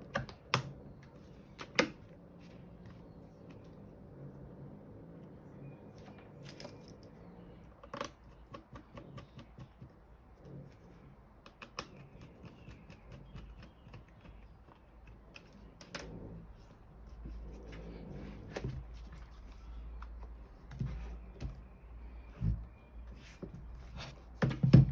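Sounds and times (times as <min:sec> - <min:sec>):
faint low hum: 0:00.0 - 0:24.9.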